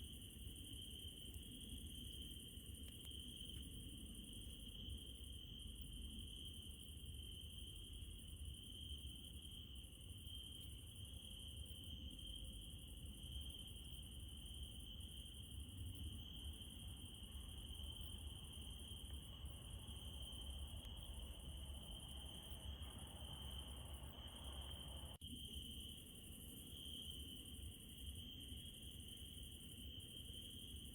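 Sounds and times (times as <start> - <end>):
crickets trilling: 0.0 - 30.9.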